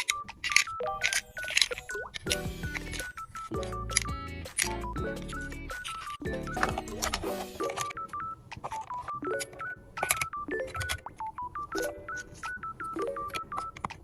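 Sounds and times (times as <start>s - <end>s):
light clicking beat: 2.3s - 7.9s.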